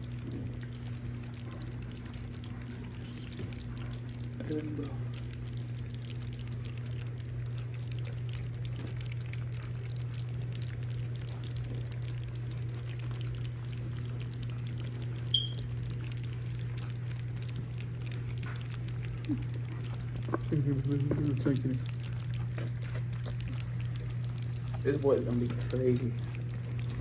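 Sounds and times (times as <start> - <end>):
low steady hum: 0.0 - 27.0
puppies lapping and licking: 0.0 - 27.0.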